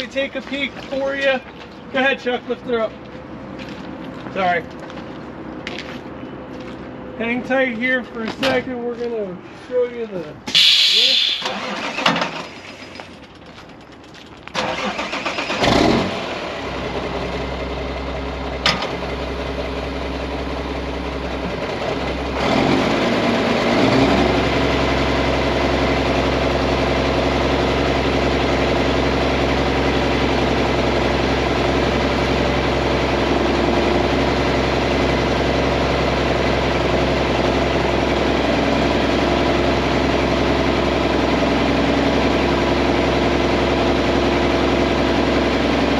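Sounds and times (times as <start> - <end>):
hydraulic hoist engaging: 10.5 - 13.2
diesel truck engine starting and idling: 10.5 - 45.9.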